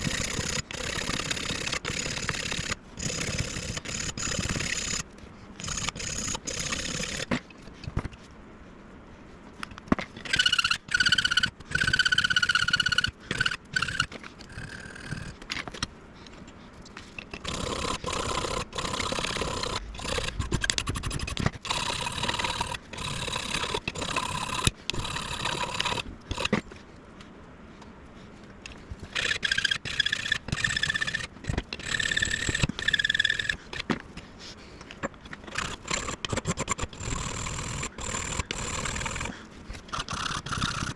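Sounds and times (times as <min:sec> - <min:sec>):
sharp clicks: 0:00.0 - 0:08.2, 0:09.6 - 0:26.7, 0:28.6 - 0:40.9
spindle running: 0:00.0 - 0:08.2, 0:09.9 - 0:26.8, 0:28.5 - 0:34.2, 0:34.8 - 0:40.9
cutter squealing on metal: 0:10.2 - 0:15.3.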